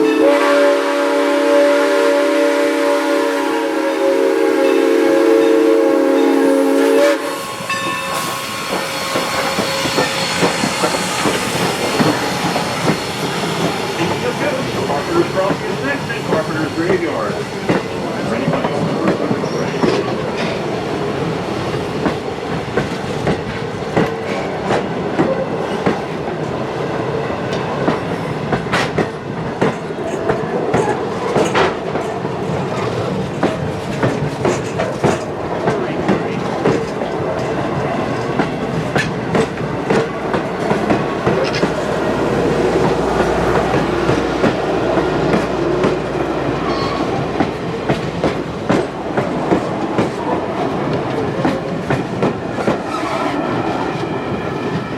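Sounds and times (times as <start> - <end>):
train wheels clicking over rail joints: 7.4 - 26.6, 27.4 - 54.9.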